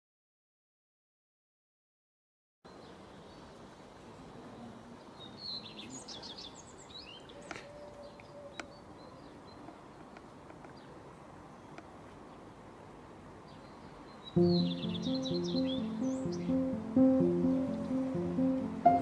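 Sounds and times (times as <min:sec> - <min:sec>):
outdoor background hiss: 0:02.7 - 0:19.0
small birds chirping: 0:02.7 - 0:19.0
faint sharp clicks: 0:11.7 - 0:11.9.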